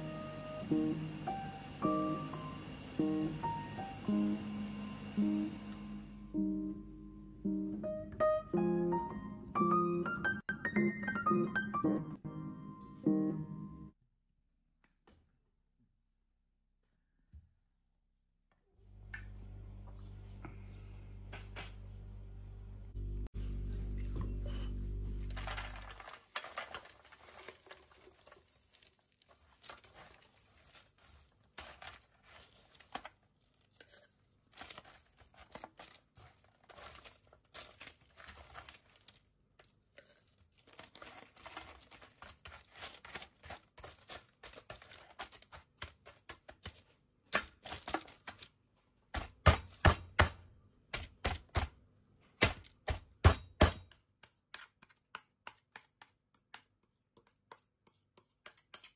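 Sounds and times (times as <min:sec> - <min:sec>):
parchment paper crinkling: 0:25.1 - 0:48.7
spoon scraping sticky mixture: 0:27.2 - 0:47.0, 0:54.2 - 0:58.9.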